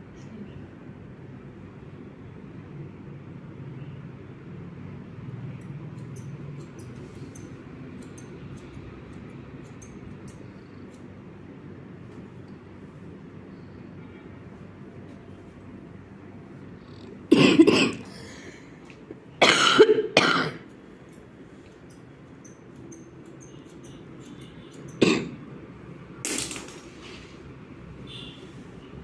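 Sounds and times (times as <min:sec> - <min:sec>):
person coughing: 0:17.3 - 0:18.2, 0:19.4 - 0:20.7, 0:25.0 - 0:25.4.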